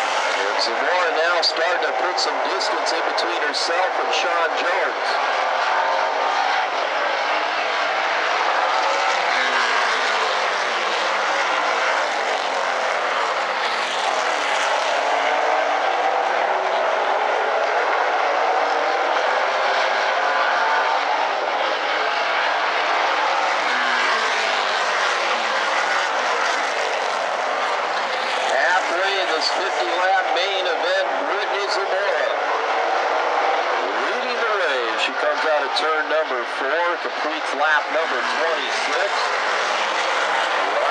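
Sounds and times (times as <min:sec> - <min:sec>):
stock car engines racing: 0:00.0 - 0:40.9.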